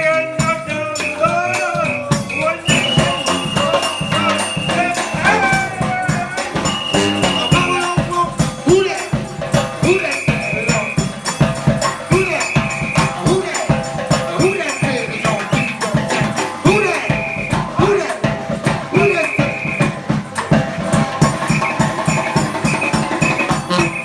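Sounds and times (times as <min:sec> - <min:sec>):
brass band playing: 0:00.0 - 0:24.0
rattling percussion beat: 0:00.0 - 0:24.0
held high brass note: 0:01.0 - 0:13.7, 0:21.2 - 0:24.0.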